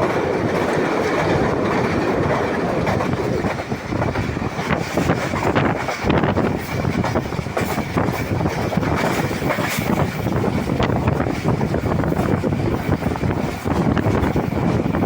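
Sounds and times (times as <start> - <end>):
fast train rumbling: 0.0 - 15.0.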